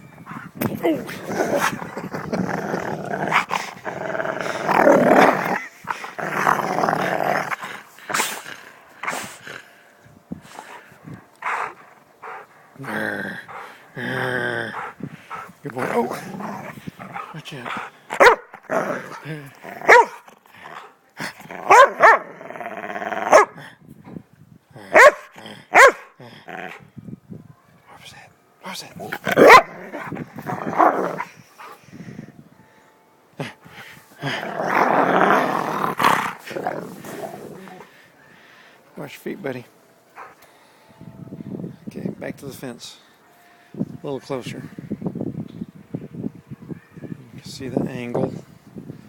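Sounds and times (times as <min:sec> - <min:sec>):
dog growling: 0:00.6 - 0:09.7, 0:11.4 - 0:23.6, 0:29.0 - 0:31.7, 0:34.2 - 0:37.9
dog barking: 0:18.2 - 0:18.5, 0:19.9 - 0:20.2, 0:21.7 - 0:22.2, 0:23.3 - 0:23.6, 0:24.9 - 0:26.1, 0:29.4 - 0:29.7.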